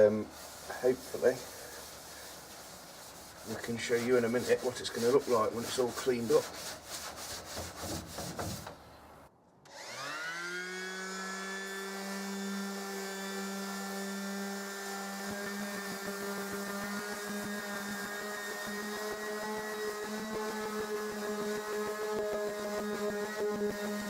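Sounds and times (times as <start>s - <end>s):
wire wool scrubbing painted panel: 0.0s - 8.9s, 14.6s - 24.0s.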